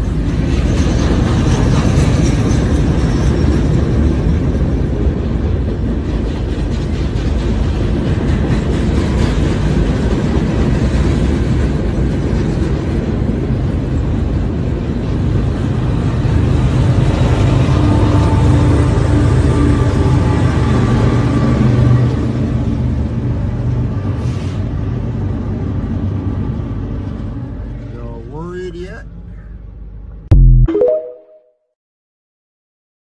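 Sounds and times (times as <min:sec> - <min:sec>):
train wheels on rails: 0:00.0 - 0:22.2.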